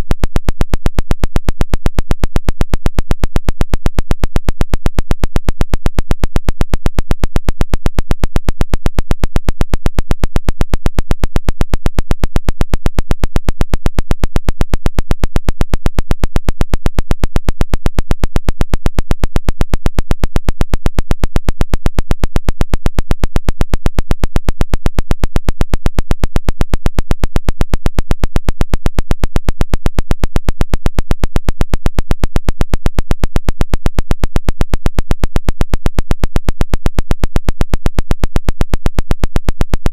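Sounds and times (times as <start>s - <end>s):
rapid clicking radio pulses: 0.2s - 39.9s.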